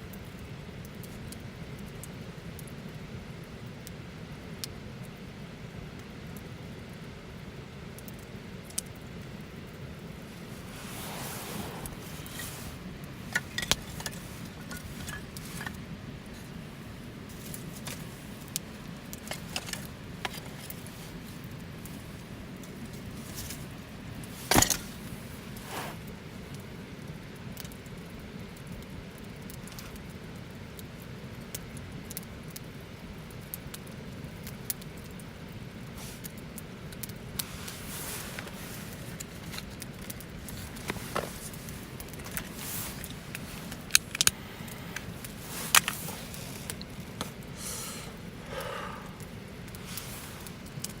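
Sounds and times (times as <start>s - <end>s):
campfire flame hissing: 0.0s - 51.0s
fire crackles and pops: 0.0s - 51.0s.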